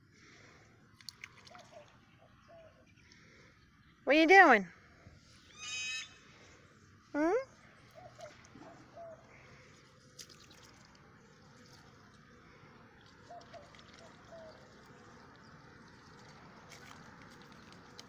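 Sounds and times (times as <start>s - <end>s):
goose dabbling in water: 0.9s - 2.0s, 8.0s - 18.0s.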